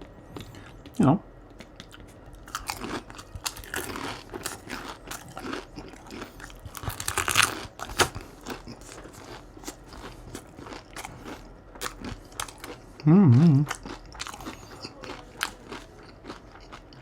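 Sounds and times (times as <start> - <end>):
crunching and chewing fried food: 0.2 - 17.0.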